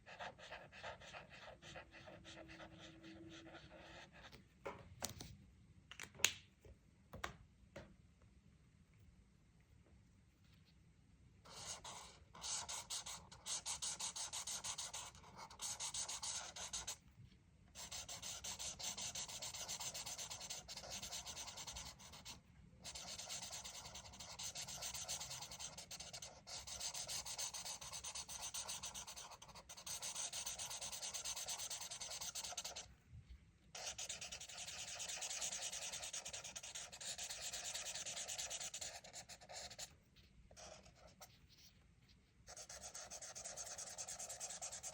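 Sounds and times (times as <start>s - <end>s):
coloring tool rubbing on paper: 11.5s - 17.0s, 17.8s - 32.9s, 33.8s - 39.9s, 42.5s - 44.9s.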